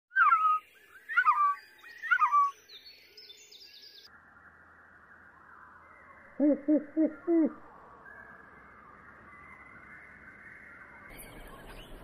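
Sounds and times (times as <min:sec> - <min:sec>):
bird calling in falling chirps: 0:00.1 - 0:02.7.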